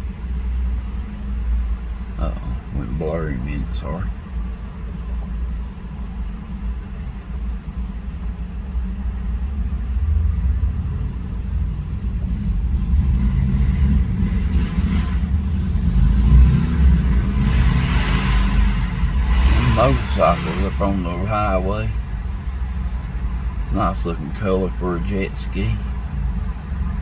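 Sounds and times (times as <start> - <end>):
motorcycle engines revving: 1.9 - 5.4, 9.5 - 27.0.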